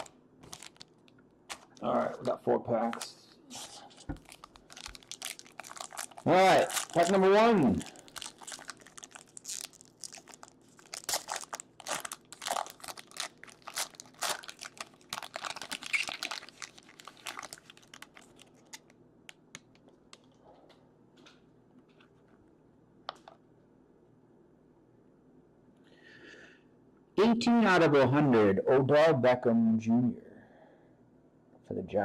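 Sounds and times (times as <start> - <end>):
wrapper crinkling and tearing: 0.0 - 2.0, 4.0 - 18.9.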